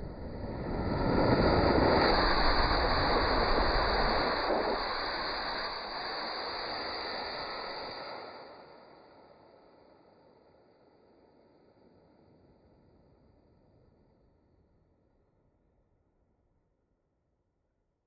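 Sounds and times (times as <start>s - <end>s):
rocket engine roaring: 0.2s - 8.0s.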